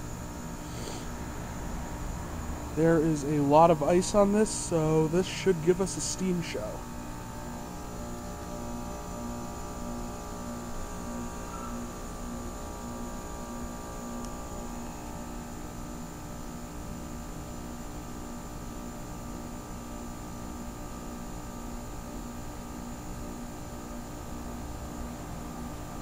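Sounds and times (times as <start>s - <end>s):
heat pump compressor and fan hum: 0.0s - 26.0s.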